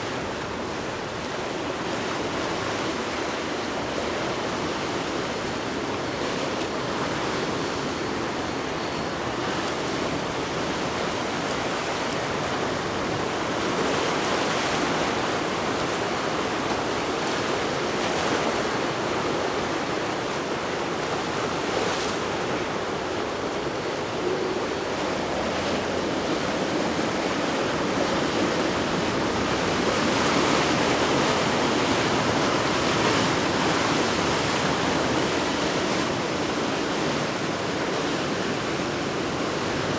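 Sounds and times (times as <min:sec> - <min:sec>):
ocean surf and churning water: 0:00.0 - 0:39.9.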